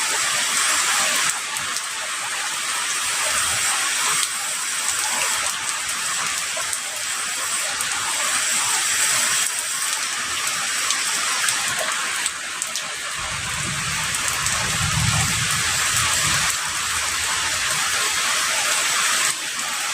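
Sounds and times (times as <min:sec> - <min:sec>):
heavy rain falling: 0:00.0 - 0:19.9
distant thunder rumble: 0:13.2 - 0:17.6.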